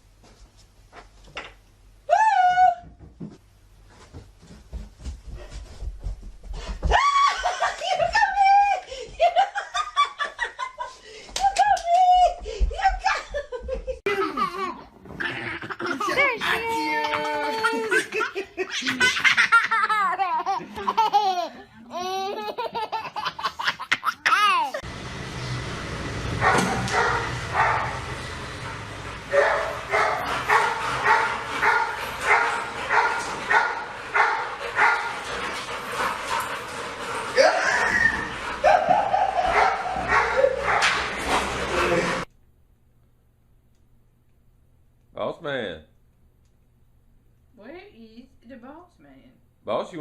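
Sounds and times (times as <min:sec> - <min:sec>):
person laughing high-pitched: 0:07.0 - 0:10.2, 0:15.7 - 0:24.8
dog barking: 0:26.4 - 0:28.0, 0:29.3 - 0:35.1, 0:38.6 - 0:41.0.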